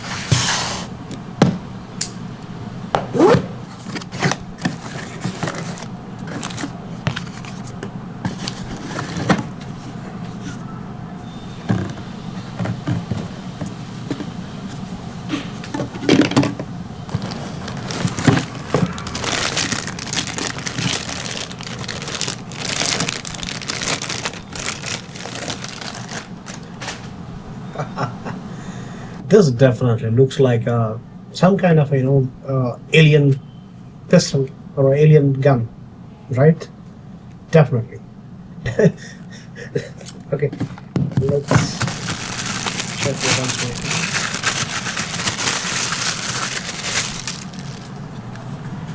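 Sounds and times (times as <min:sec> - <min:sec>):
packaging scraping and rustling: 0:03.1 - 0:10.6, 0:11.5 - 0:27.2, 0:40.6 - 0:48.9.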